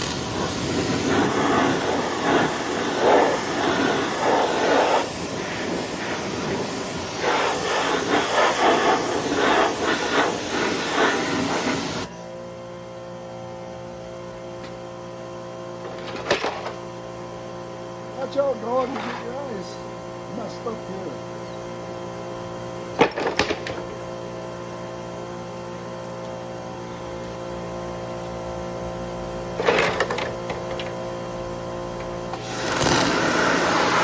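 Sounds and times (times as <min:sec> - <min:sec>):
pressure washer spray: 0:00.0 - 0:12.1, 0:32.4 - 0:34.0
steady hum: 0:00.0 - 0:34.0.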